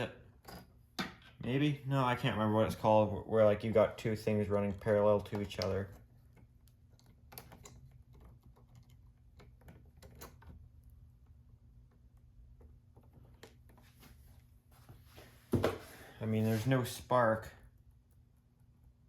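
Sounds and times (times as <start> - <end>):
low steady hum: 0.0 - 19.0
clicks and taps of wires: 4.8 - 10.6.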